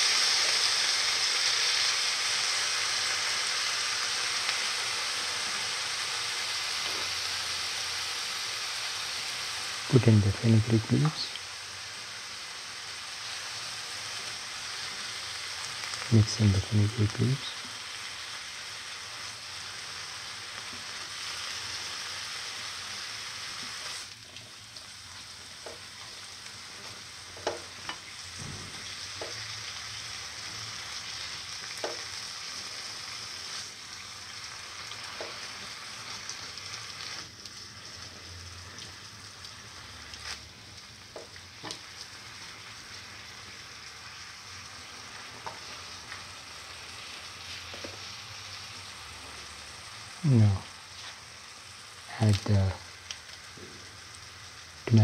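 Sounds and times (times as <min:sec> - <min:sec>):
food sizzling in oil: 0:00.0 - 0:55.0.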